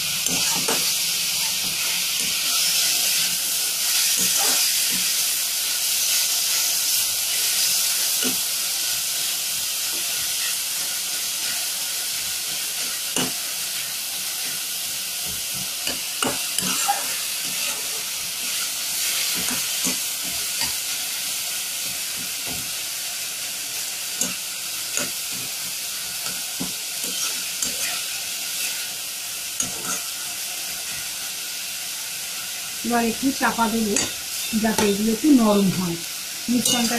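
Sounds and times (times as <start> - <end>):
food sizzling in a pan: 0.0 - 36.9
spatula scraping a pan: 0.2 - 8.9, 15.2 - 21.0, 24.1 - 29.0, 29.6 - 31.1, 33.9 - 35.0, 36.5 - 36.9.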